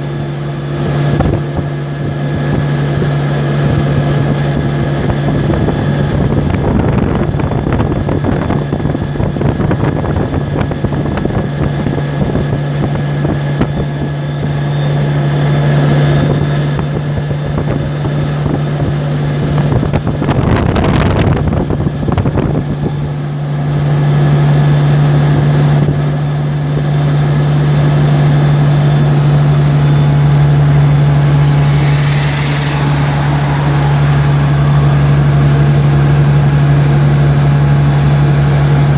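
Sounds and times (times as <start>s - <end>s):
vehicle engine and tyre drone: 28.0s - 38.9s
brief rush of passing air: 31.0s - 36.8s.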